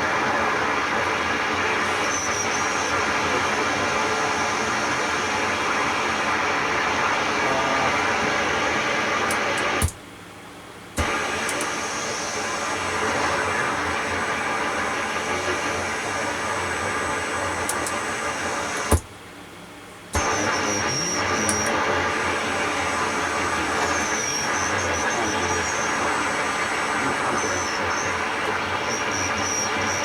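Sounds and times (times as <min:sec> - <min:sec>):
shortwave radio static: 0:00.0 - 0:10.0, 0:11.0 - 0:19.1, 0:20.1 - 0:30.0
radio click: 0:09.1 - 0:10.0, 0:11.0 - 0:14.4, 0:15.0 - 0:19.1, 0:20.1 - 0:30.0.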